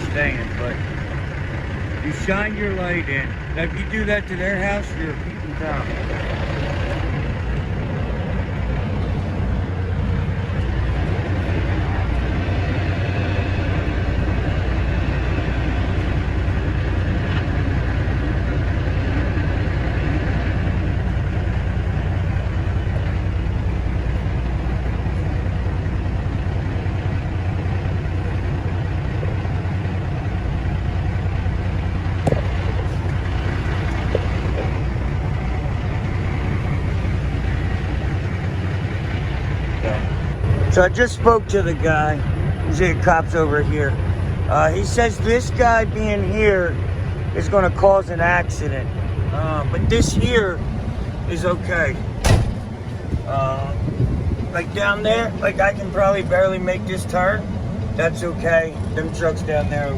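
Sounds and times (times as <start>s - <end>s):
diesel truck engine idling: 0.0s - 59.9s
brief knocks: 52.2s - 52.7s.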